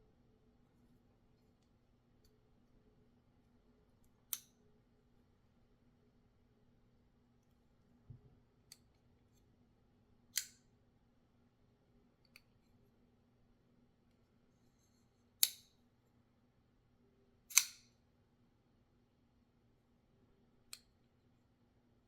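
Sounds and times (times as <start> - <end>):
knife blade snapping into place: 17.5 - 17.9.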